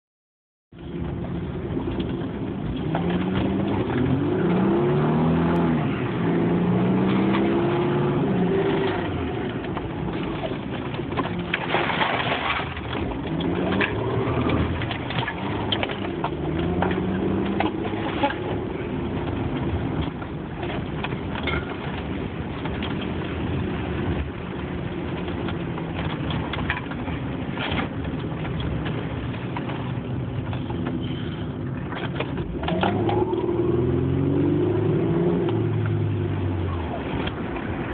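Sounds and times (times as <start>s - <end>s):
car engine revving: 1.7s - 20.0s, 28.5s - 37.9s.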